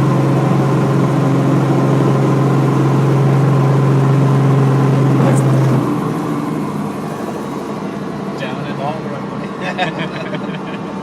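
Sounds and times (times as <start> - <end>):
helicopter engine drone: 0.0 - 11.0
strong low hum: 5.0 - 8.4.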